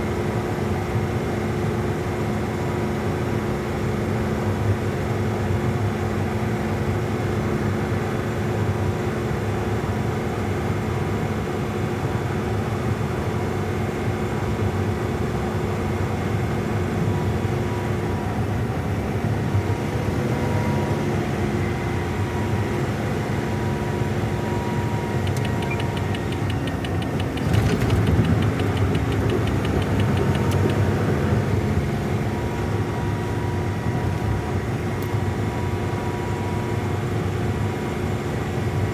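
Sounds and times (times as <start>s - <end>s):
truck engine running: 17.4s - 36.6s
fine rattle: 25.3s - 31.5s.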